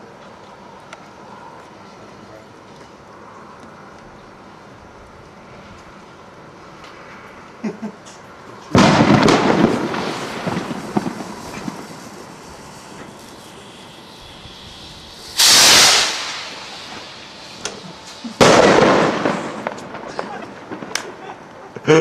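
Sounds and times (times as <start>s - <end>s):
firework hissing and crackling: 8.2s - 21.7s
firework pops: 8.7s - 21.2s.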